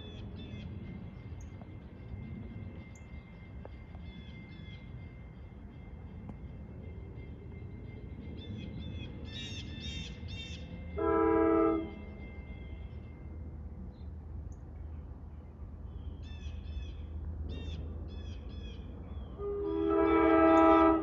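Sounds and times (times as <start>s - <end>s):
train air horn blast: 11.0s - 12.0s, 19.4s - 21.0s.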